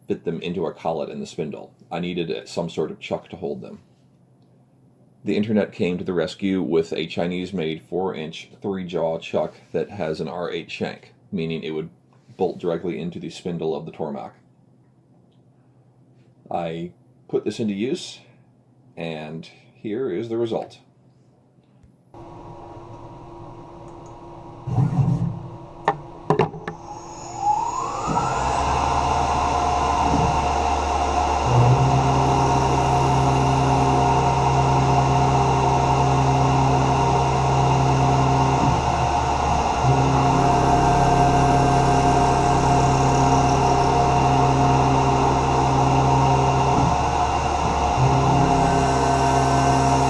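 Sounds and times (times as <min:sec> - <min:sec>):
mill running with steady hum: 0:22.2 - 0:50.0
spindle whine: 0:22.2 - 0:50.0.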